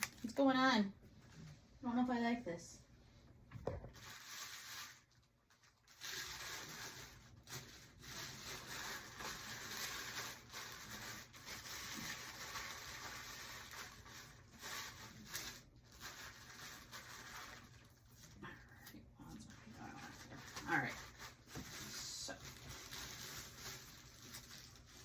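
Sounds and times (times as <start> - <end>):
packing material rustling: 3.8 - 25.0.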